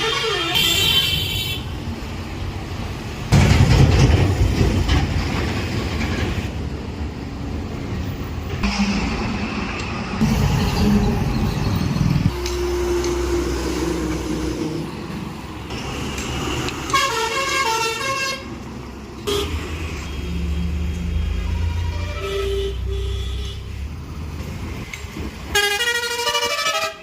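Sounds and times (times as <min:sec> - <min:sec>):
musical multi-tone horn: 0:00.0 - 0:01.6, 0:25.5 - 0:27.0
vehicle horns: 0:00.0 - 0:01.7, 0:16.9 - 0:18.5, 0:19.2 - 0:20.3, 0:21.2 - 0:23.7, 0:25.5 - 0:27.0
traffic engine rumble: 0:00.0 - 0:27.0.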